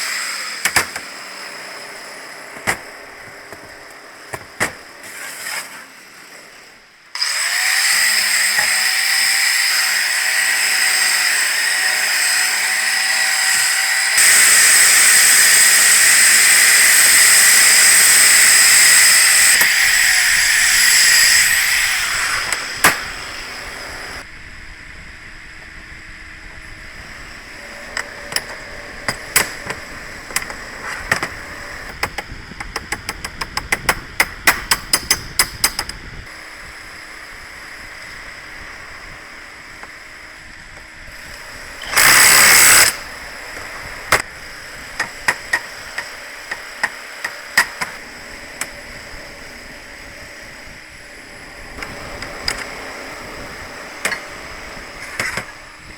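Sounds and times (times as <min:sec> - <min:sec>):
loud burst of hissing: 0:11.7 - 0:24.2
sharp metal taps and knocks: 0:31.9 - 0:36.0.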